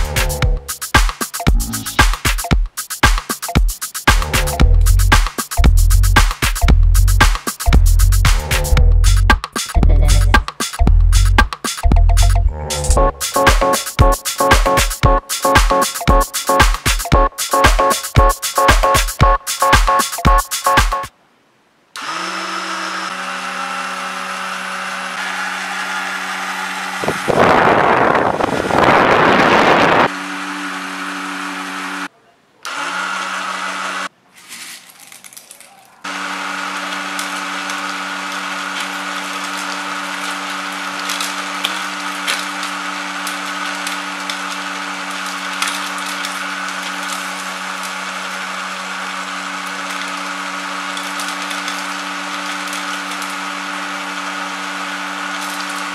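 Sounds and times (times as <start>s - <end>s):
small motor humming: 22.0s - 32.1s, 36.1s - 55.9s
loud bursts of noise: 25.2s - 30.1s
seeds ticking and rattling: 34.3s - 36.0s, 36.8s - 53.9s, 55.1s - 55.9s.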